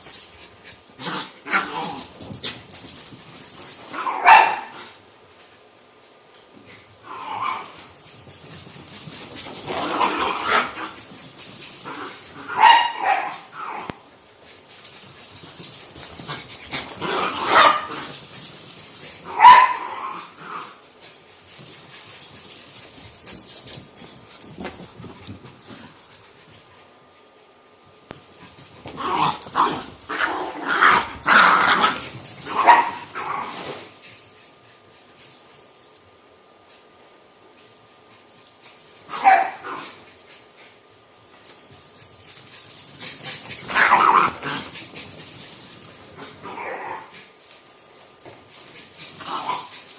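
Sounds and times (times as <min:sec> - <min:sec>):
dogs barking and yipping: 0:00.0 - 0:05.0, 0:07.1 - 0:14.1, 0:14.8 - 0:20.8, 0:28.5 - 0:34.4, 0:38.2 - 0:49.9.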